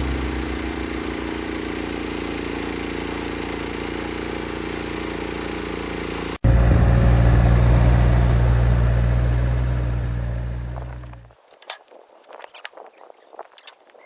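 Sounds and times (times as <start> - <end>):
heavy engine running: 0.0 - 11.2.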